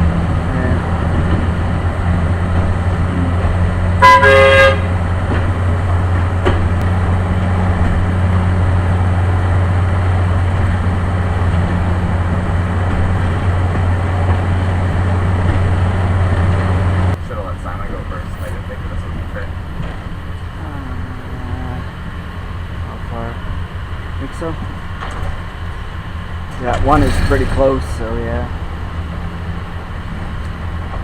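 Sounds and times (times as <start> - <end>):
vehicle engine running: 0.0 - 31.0
car horn toot: 4.0 - 5.0.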